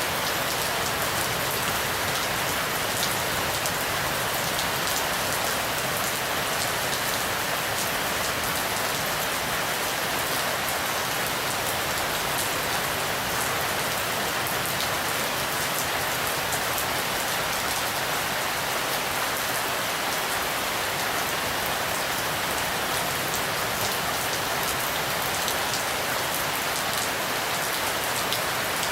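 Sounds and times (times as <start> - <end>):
rain drops pattering: 0.0 - 18.5.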